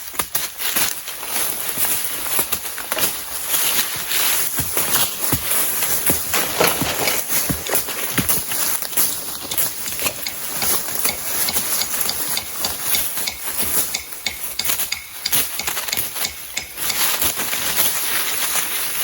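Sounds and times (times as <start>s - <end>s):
sticks knocking and snapping: 4.5s - 17.6s.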